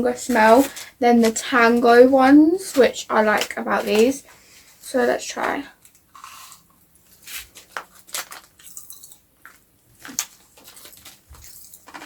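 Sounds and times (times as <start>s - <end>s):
popping candy crackling in mouth: 7.5s - 12.0s.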